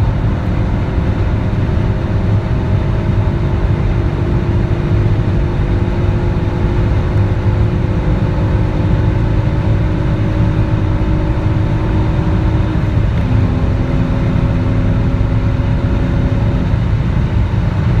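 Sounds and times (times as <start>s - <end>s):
car engine at high speed: 0.0s - 18.0s
road and wind rumble: 0.0s - 18.0s.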